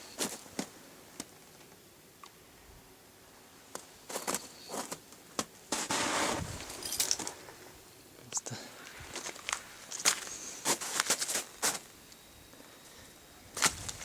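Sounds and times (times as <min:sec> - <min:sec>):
footsteps crunching on ground: 0:08.7 - 0:11.9, 0:13.6 - 0:14.0.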